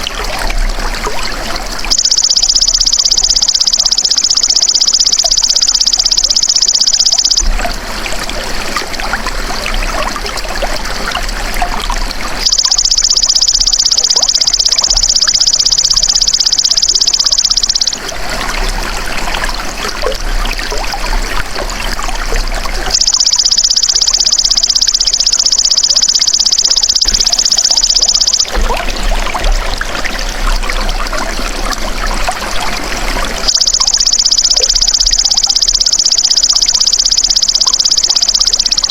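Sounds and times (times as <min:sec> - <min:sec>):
insect high-pitched buzz: 0:01.9 - 0:07.5, 0:33.5 - 0:38.9.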